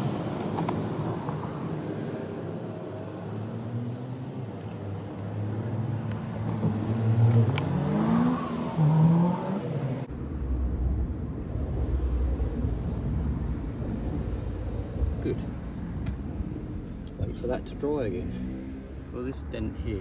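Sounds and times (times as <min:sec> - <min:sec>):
car engine accelerating: 0:05.3 - 0:19.4
steady low rumble: 0:10.0 - 0:18.4.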